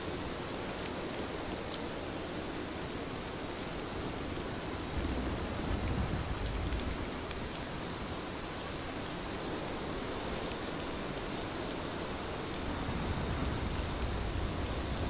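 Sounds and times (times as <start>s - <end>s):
heavy rain falling: 0.1s - 15.0s.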